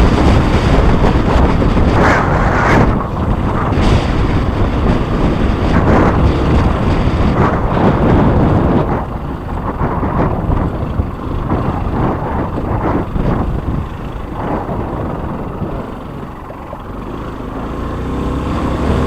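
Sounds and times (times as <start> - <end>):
moving vehicle: 0.0 - 19.0
wind buffeting microphone: 0.0 - 19.0.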